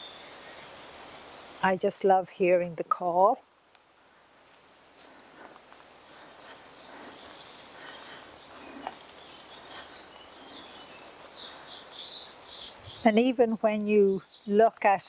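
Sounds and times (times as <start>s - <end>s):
birds singing: 0.0s - 1.6s, 3.2s - 15.0s
footsteps on dirt path: 5.0s - 13.0s.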